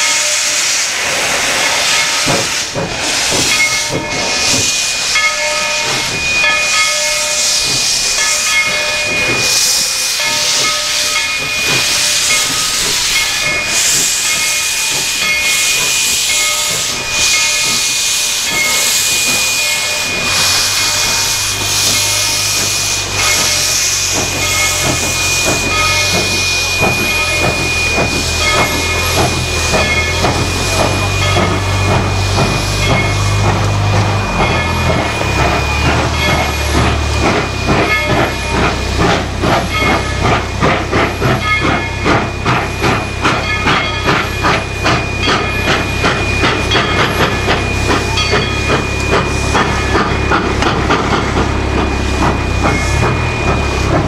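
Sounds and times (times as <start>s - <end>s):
steam locomotive hissing: 0.0s - 54.0s.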